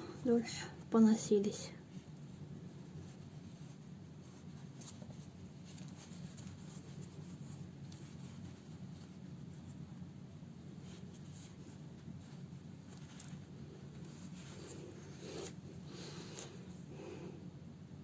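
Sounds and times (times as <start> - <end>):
needle and thread through fabric: 0.0 - 17.1
low steady hum: 0.0 - 18.0.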